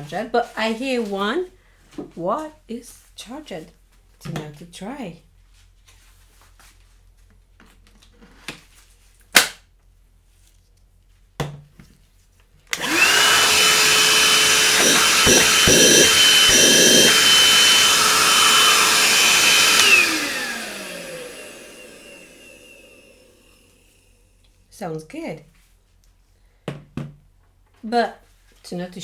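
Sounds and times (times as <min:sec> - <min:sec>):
hand-held vacuum cleaner whining: 0:12.8 - 0:24.0.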